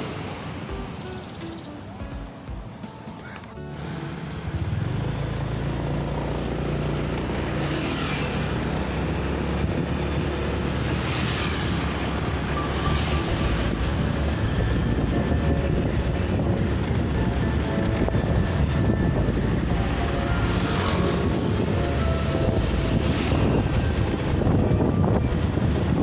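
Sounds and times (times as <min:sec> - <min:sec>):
motorcycle engine running: 0:04.0 - 0:26.0
wind noise on microphone: 0:08.8 - 0:26.0.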